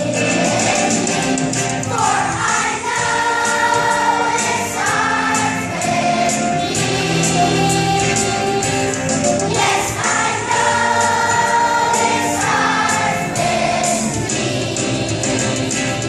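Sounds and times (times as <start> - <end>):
choir singing long notes: 0.0 - 16.0.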